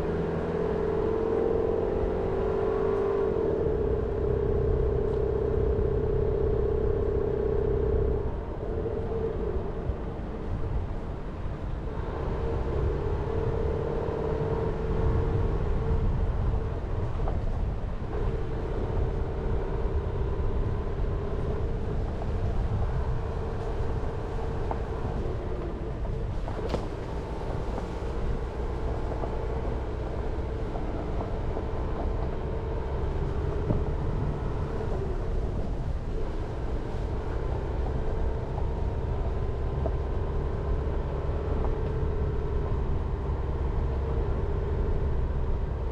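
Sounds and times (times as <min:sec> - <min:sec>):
car engine and tyre rumble: 0:00.0 - 0:45.9.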